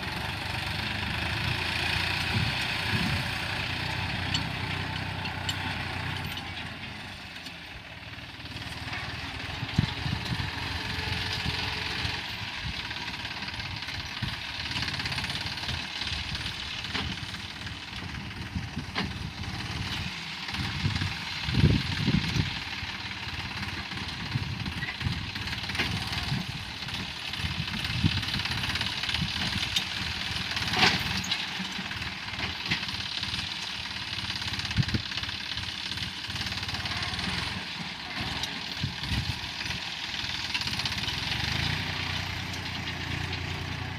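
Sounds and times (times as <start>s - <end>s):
tractor diesel engine running: 0.0s - 43.9s
plough thuds and rattles: 14.2s - 22.6s, 23.5s - 43.9s.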